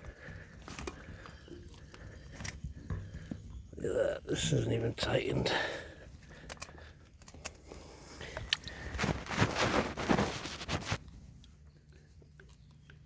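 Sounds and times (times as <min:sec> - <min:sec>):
clicks and knocks of handling: 0:06.4 - 0:07.6.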